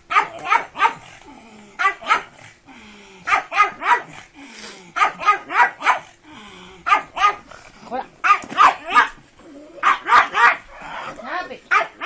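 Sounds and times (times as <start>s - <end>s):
dog barking: 0.1s - 1.1s, 1.8s - 2.3s, 3.3s - 4.2s, 5.0s - 6.1s, 6.9s - 7.5s, 8.2s - 9.2s, 9.8s - 10.7s, 11.7s - 12.0s.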